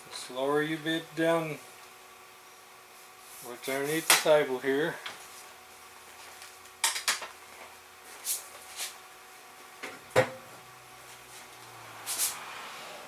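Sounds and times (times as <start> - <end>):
soft scrapes: 2.9 - 4.1, 11.0 - 13.0.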